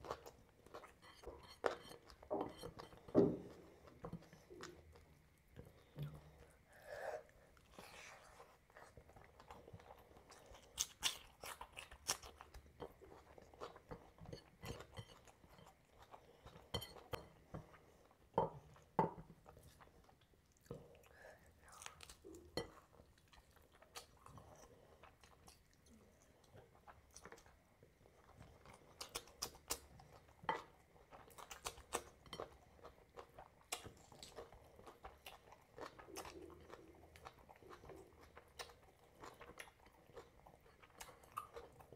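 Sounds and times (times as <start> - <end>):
person chewing and crunching food: 0.0 - 41.9.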